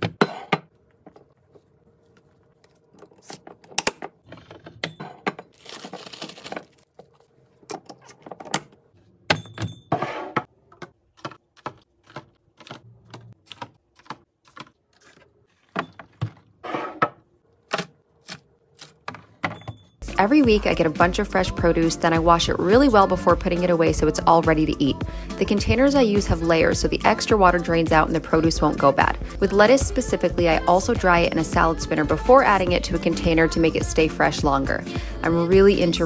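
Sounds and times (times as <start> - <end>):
packaging rustling: 5.5 - 8.5.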